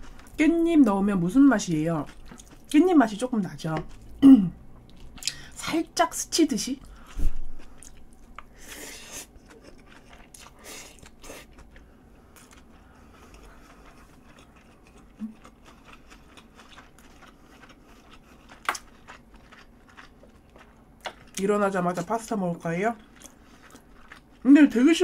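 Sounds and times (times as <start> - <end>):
person chewing spaghetti: 0.0 - 0.4, 2.0 - 2.8, 3.8 - 5.6, 6.8 - 21.4, 23.0 - 24.4.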